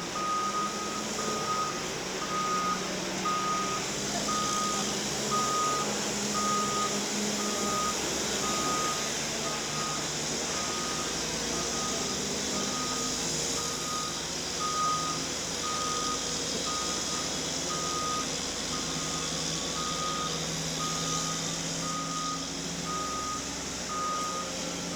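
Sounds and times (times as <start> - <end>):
forklift engine running: 0.0 - 24.9
forklift reversing alarm beeping: 0.1 - 24.9.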